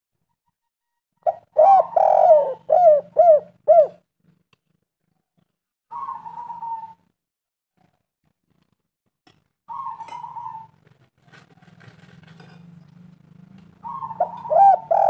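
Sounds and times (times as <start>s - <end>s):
dove cooing: 1.2s - 4.1s, 5.9s - 7.1s, 9.7s - 12.2s, 13.6s - 15.0s.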